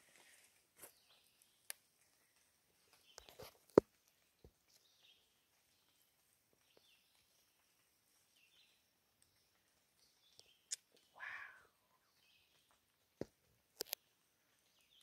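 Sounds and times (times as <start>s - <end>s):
faint bird calls: 11.0s - 12.4s.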